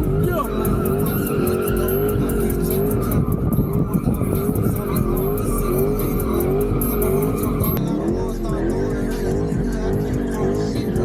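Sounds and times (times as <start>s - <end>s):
tyres screeching: 0.0s - 7.8s
wavering tone: 0.0s - 7.8s
car engine at high revs: 0.0s - 11.0s.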